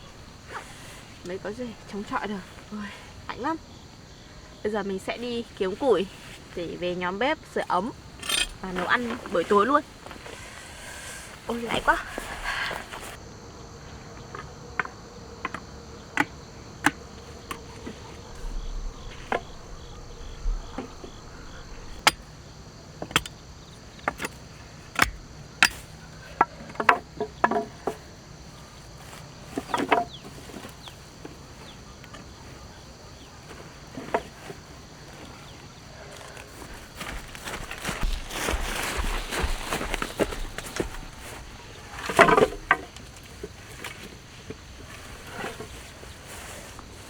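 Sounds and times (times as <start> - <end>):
crickets chirring: 0.0 - 47.0
twigs snapping: 36.1 - 45.9.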